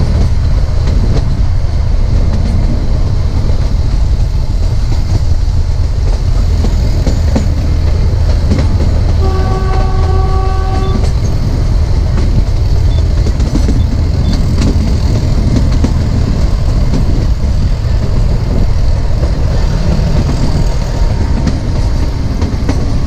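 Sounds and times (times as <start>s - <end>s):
train rumbling: 0.0s - 23.0s
wheels clicking over rail joints: 0.0s - 23.0s
locomotive horn: 9.1s - 11.2s.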